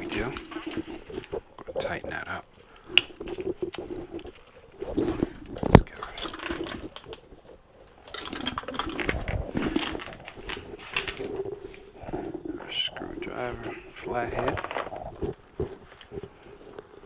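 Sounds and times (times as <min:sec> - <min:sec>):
metal tools clinking and rattling: 0:05.5 - 0:07.2, 0:08.0 - 0:11.3.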